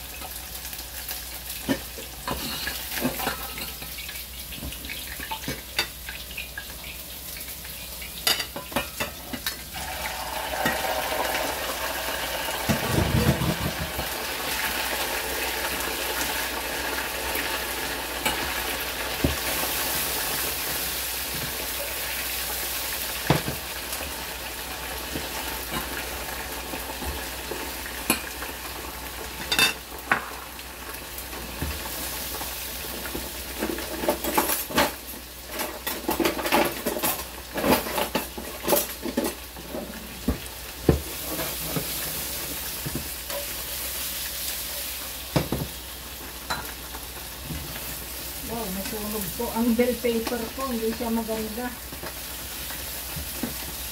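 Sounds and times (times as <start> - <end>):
ribs sizzling in hot oil: 0.0 - 53.9.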